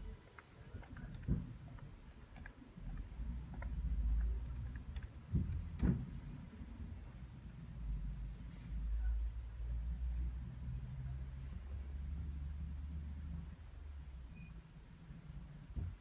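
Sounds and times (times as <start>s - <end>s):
clicking on computer input devices: 0.2s - 6.0s.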